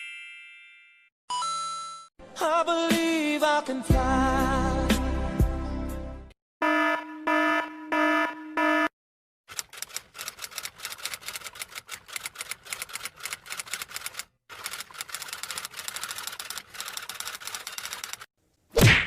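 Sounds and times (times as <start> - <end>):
rapid keyboard typing: 9.5 - 18.3.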